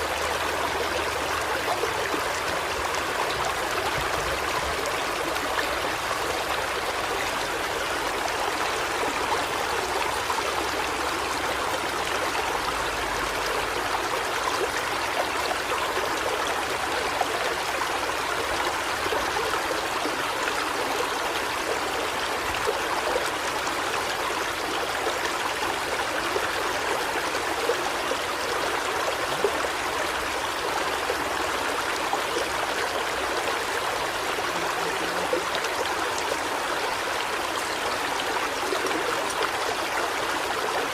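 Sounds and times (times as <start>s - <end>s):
running water: 0.0s - 40.9s.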